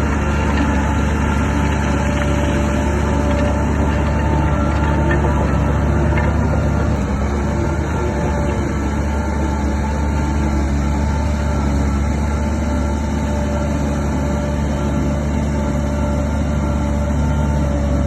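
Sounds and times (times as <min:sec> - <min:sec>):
diesel engine running steadily: 0:00.0 - 0:18.0.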